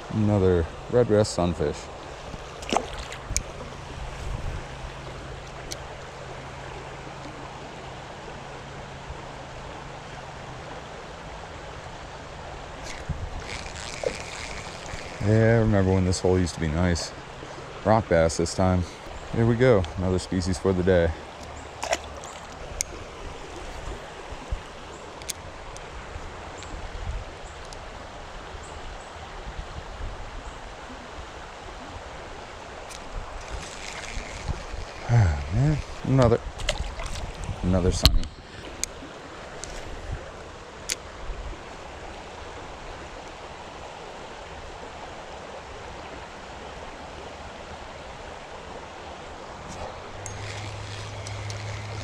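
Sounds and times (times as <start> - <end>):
creek water rushing: 0.0 - 52.0
faint clicks: 27.6 - 27.8.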